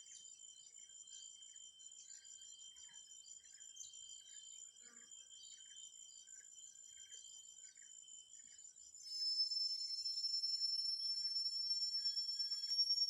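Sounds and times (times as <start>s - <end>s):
high insect drone: 9.1s - 13.0s
insects trilling: 9.1s - 13.0s
soft short chirp: 9.1s - 13.0s.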